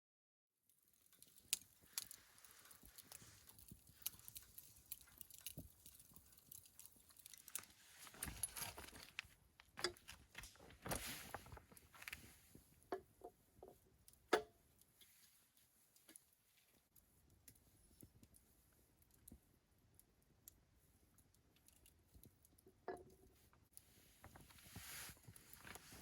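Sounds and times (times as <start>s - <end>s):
light clicks and clinks: 1.0s - 9.2s
quiet rustling: 1.0s - 12.7s, 23.2s - 26.0s.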